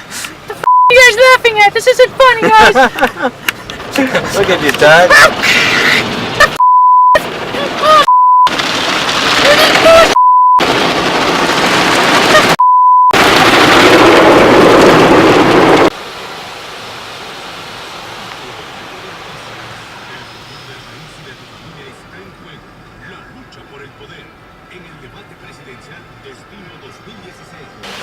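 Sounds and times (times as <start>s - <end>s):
car wash water jets drumming: 0.0s - 6.6s, 7.2s - 12.6s, 13.3s - 28.0s
censor bleeps: 6.6s - 7.2s, 8.0s - 8.5s, 10.1s - 10.6s, 12.6s - 13.2s.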